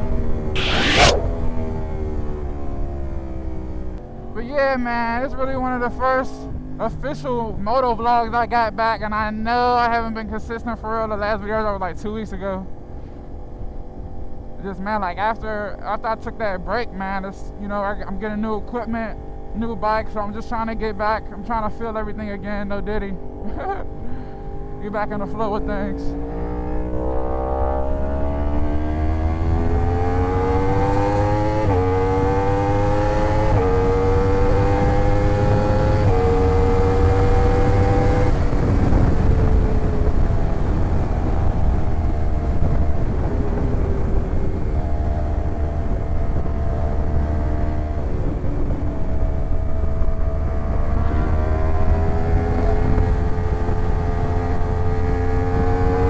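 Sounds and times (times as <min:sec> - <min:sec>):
low wind rumble: 0:00.0 - 0:56.0
motorcycle engine accelerating: 0:00.5 - 0:04.2, 0:23.1 - 0:56.0.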